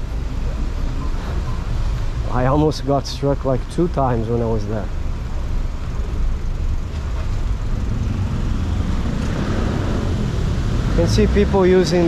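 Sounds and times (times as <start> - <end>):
vehicles passing on wet road: 6.9 - 12.0.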